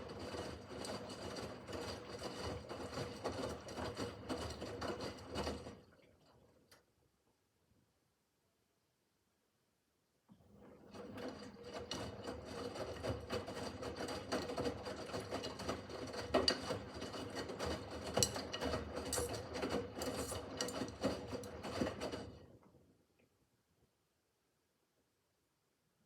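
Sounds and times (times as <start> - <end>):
washing machine motor hum: 0.0 - 6.7, 10.5 - 22.6.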